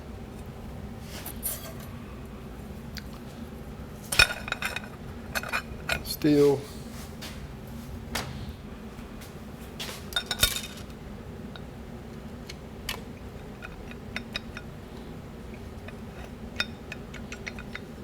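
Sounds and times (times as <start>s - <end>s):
metal clutch plates clinking: 1.2s - 2.0s.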